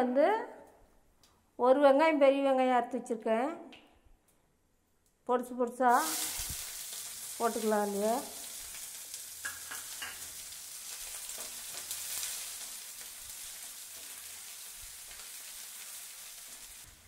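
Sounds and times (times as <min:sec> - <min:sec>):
onions sizzling in oil: 0:05.9 - 0:17.0.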